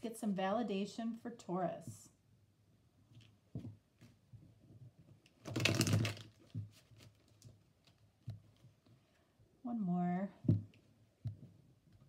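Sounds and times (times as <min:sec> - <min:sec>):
cards shuffling: 0:05.3 - 0:08.8.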